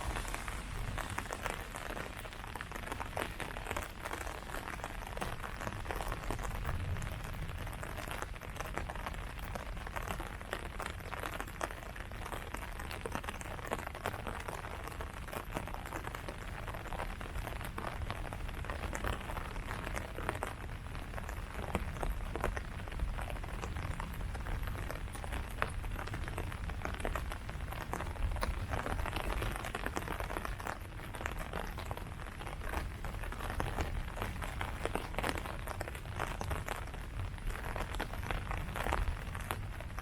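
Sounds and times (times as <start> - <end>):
rain falling on leaves: 0.0 - 40.0.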